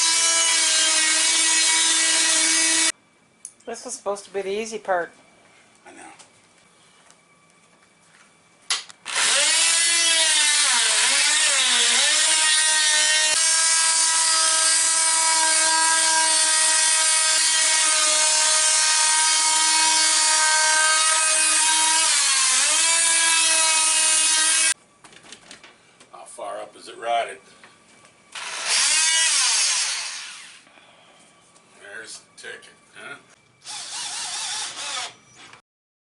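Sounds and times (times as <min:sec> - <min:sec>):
power tool cutting wood: 0:00.0 - 0:02.9, 0:09.0 - 0:24.8, 0:28.3 - 0:30.6, 0:33.6 - 0:35.6.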